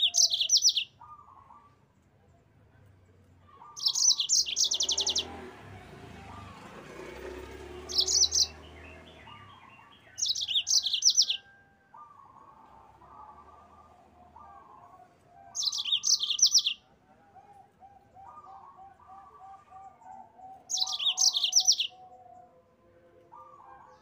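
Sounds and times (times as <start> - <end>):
canary trilling: 0.0 - 1.4, 3.6 - 14.9, 15.5 - 16.8, 18.2 - 22.1.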